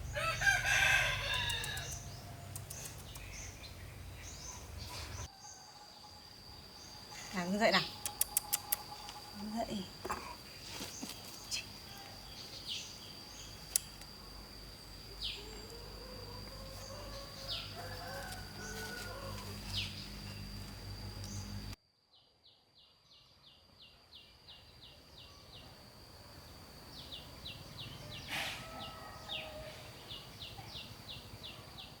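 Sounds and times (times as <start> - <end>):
fast regular ticking calls: 0.0 - 4.1, 7.6 - 9.7
birds chirping: 0.0 - 21.8
steady high-pitched drone: 12.6 - 21.8.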